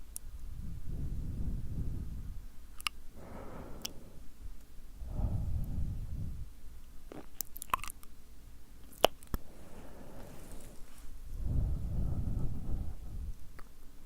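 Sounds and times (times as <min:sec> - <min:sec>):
tongue and lip clicks: 0:02.8 - 0:03.0, 0:07.1 - 0:08.1, 0:08.8 - 0:09.4
breathy rush: 0:03.1 - 0:04.4, 0:09.4 - 0:13.3.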